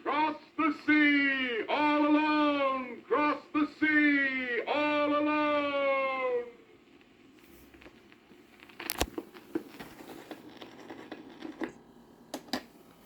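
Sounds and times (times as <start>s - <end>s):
record surface crackle: 5.5s - 13.0s
record pops and clicks: 6.8s - 13.0s.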